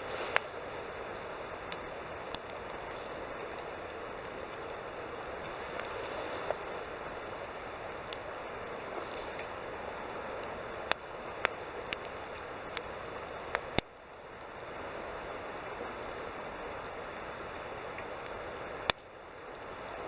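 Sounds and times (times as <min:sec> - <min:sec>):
campfire hissing: 0:00.0 - 0:20.0
fire crackles and pops: 0:00.0 - 0:20.0.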